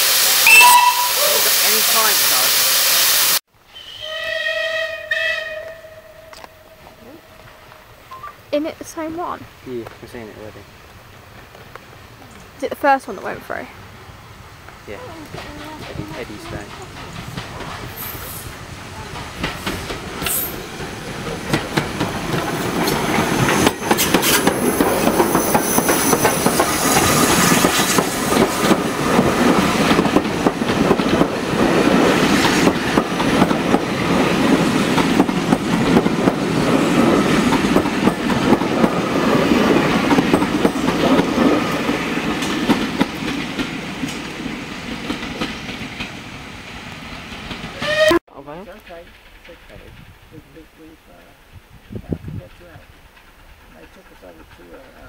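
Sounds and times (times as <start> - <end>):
train passing: 0.0 - 55.0
train wheels clattering over rail joints: 14.7 - 44.3.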